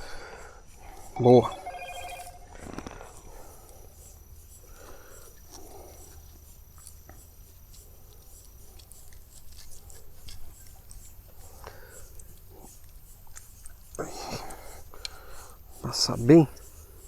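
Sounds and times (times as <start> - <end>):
faint steady high tone: 1.2 - 2.7.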